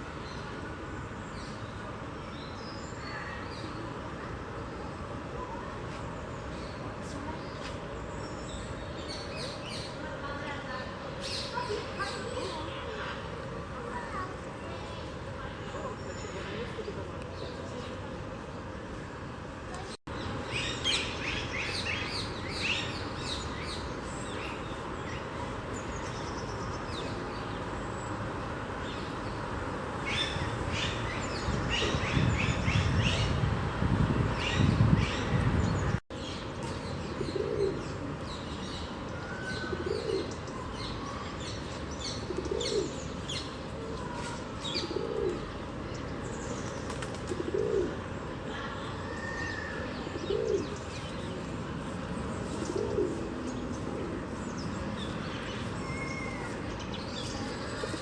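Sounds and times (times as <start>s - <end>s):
dove cooing: 37.2s - 38.0s, 39.6s - 40.4s, 42.2s - 43.0s, 44.8s - 45.5s, 47.0s - 48.0s, 50.2s - 50.8s, 52.4s - 54.2s.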